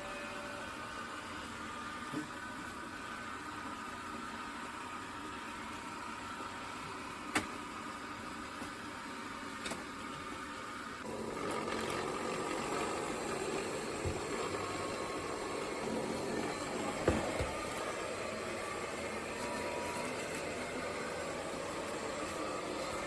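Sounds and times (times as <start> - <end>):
robot vacuum motor: 10.0 - 23.0.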